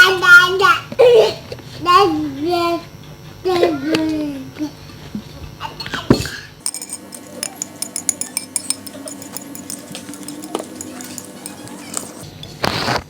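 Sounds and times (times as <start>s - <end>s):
cutlery clinking on a plate: 6.6s - 12.2s.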